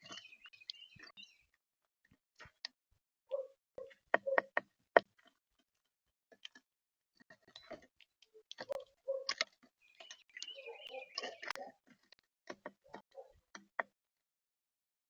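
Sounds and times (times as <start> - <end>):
birds pecking seed: 0.0 - 1.6, 7.3 - 13.8
short bird chirping call: 9.9 - 11.7.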